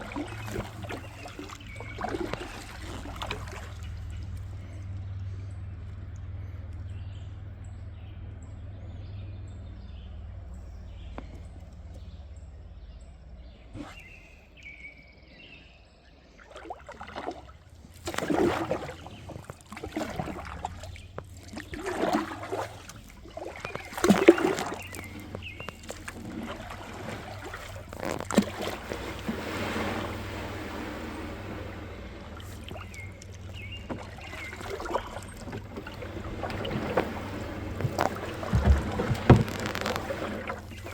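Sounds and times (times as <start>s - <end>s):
kayak paddle splashing in water: 0.0s - 5.5s, 16.3s - 40.9s
low steady rumble: 0.0s - 16.4s, 17.0s - 40.9s
water sloshing and trickling: 0.0s - 40.9s.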